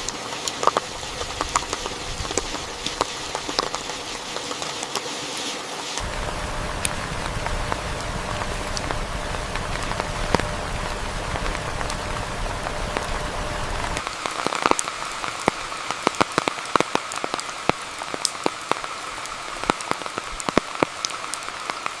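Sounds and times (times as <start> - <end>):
steady rain: 0.0 - 22.0
low rumble: 6.0 - 14.0.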